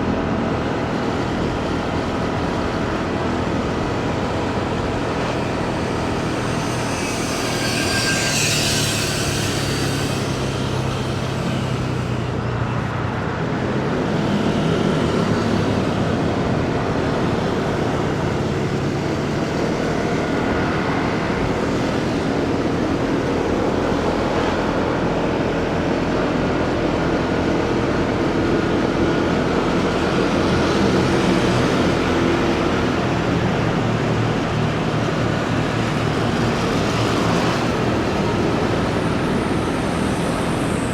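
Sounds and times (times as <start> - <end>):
passing vehicles: 0.0 - 40.9
road and wind noise: 0.0 - 40.9
motorcycle engine running: 0.2 - 12.8.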